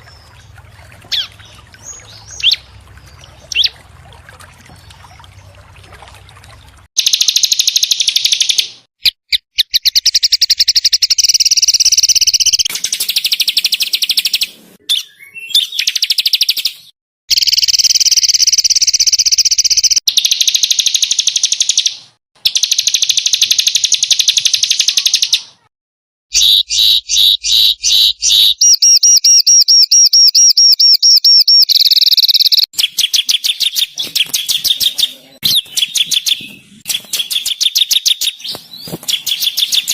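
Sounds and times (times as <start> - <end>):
songbirds trilling: 0.0 - 6.9, 31.7 - 39.9.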